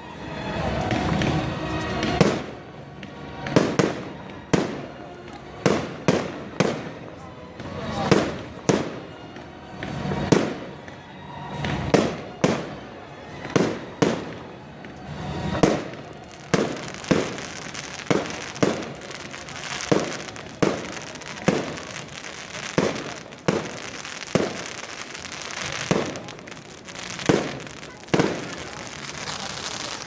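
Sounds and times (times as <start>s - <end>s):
fireworks crackling: 0.4s - 30.0s
fireworks banging: 5.6s - 7.1s, 7.8s - 30.0s.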